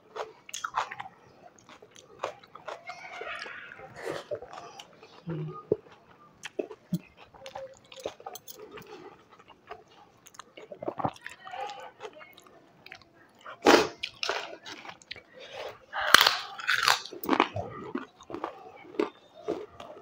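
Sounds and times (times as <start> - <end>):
chewing with wet mouth clicks: 0.1 - 3.6, 4.3 - 20.0
loud crunchy bites: 16.1 - 19.7.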